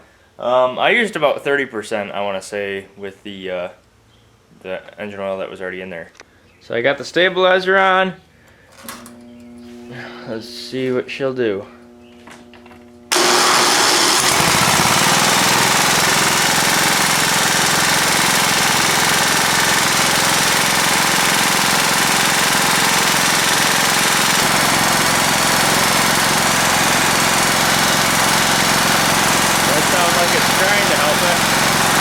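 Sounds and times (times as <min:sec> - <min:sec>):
mower engine starting and running: 0:11.9 - 0:32.0
engine knocking: 0:13.1 - 0:32.0.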